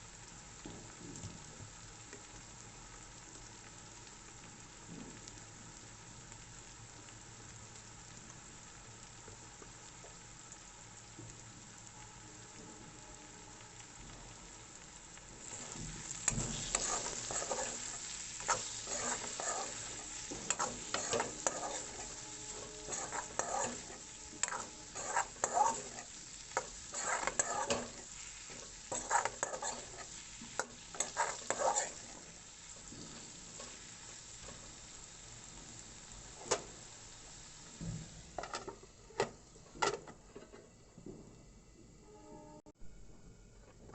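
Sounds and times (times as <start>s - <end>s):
potatoes sizzling in oil: 0.0s - 40.9s
spatula scraping a pan: 15.4s - 34.9s.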